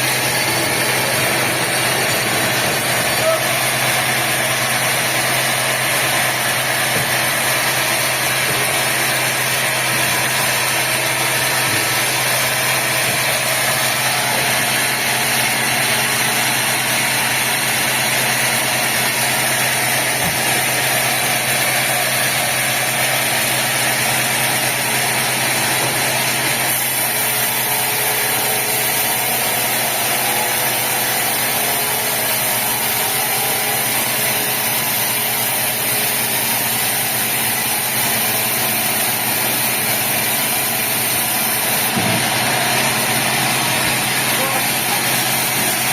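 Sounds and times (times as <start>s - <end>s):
sawmill machinery humming: 0.0s - 45.9s.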